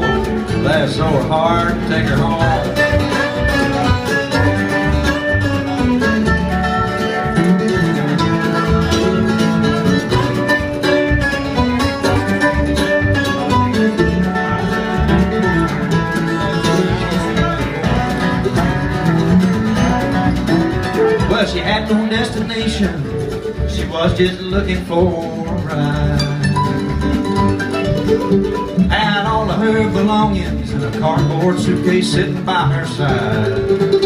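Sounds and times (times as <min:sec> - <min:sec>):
banjo: 0:00.0 - 0:34.0
picked guitar: 0:00.0 - 0:34.0
steady bass rhythm: 0:00.0 - 0:34.0.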